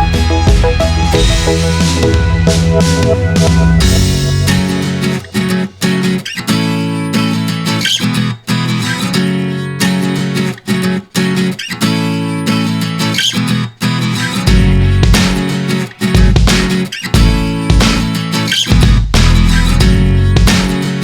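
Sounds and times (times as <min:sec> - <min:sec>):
bass line: 0:00.0 - 0:05.4, 0:14.5 - 0:15.3, 0:17.2 - 0:18.0, 0:18.8 - 0:20.6
strummed acoustic guitar: 0:00.0 - 0:21.0.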